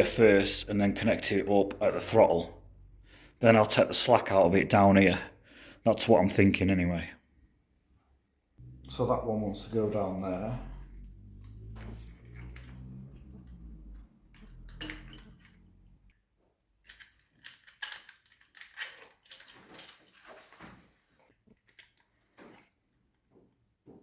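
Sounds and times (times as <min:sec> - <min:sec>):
low steady hum: 0:08.6 - 0:17.1
metal parts and tools clinking: 0:10.6 - 0:20.7, 0:21.3 - 0:22.7.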